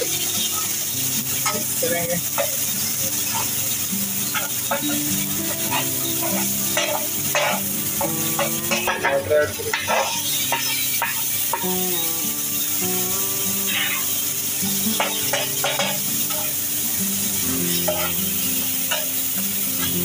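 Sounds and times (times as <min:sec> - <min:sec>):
metal spatula scraping griddle: 0:00.0 - 0:11.6, 0:14.9 - 0:16.6, 0:17.2 - 0:19.2
onions sizzling in oil: 0:00.0 - 0:20.0.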